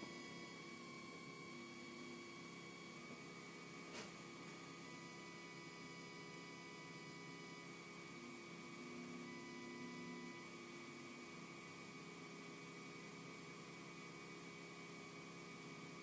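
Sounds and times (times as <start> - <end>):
thin whining tones: 0.0 - 16.0.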